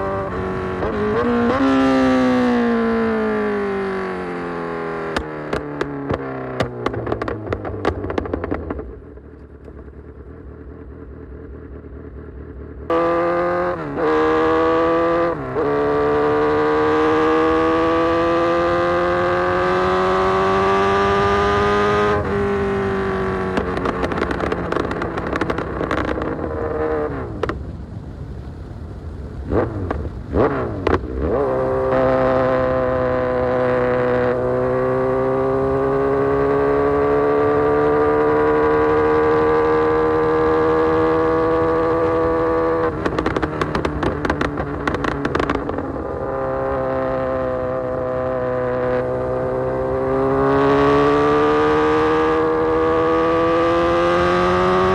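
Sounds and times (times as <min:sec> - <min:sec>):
motorcycle throttle blips: 0:00.0 - 0:27.8, 0:29.4 - 0:54.9
motorcycle engine accelerating: 0:00.0 - 0:54.9
exhaust crackles: 0:21.6 - 0:34.8, 0:39.7 - 0:50.0.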